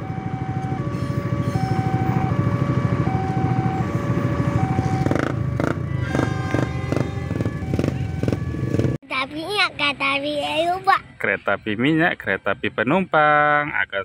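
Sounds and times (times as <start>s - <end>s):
two-tone crossing warning alarm: 0.0s - 9.0s.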